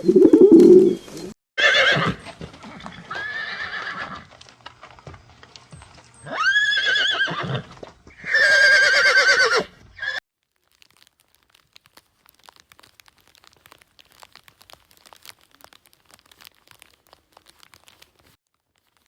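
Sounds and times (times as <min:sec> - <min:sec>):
horse whinnying: 0:01.6 - 0:04.3, 0:06.2 - 0:10.2
faint crackling: 0:10.4 - 0:19.0.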